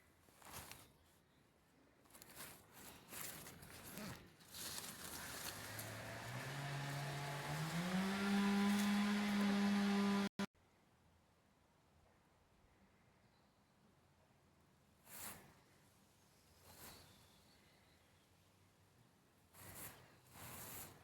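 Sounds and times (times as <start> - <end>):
rustling: 0.2 - 1.2, 2.0 - 9.7, 19.5 - 21.0
machine hum rising in pitch: 5.7 - 10.4.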